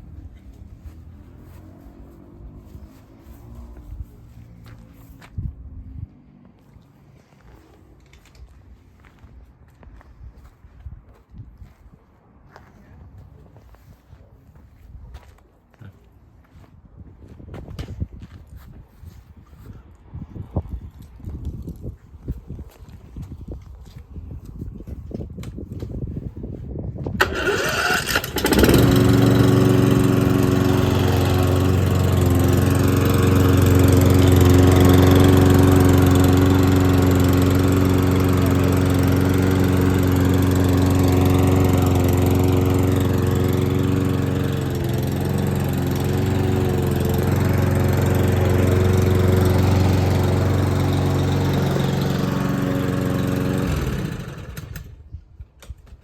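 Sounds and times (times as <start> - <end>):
lawn mower engine running: 27.2 - 55.0.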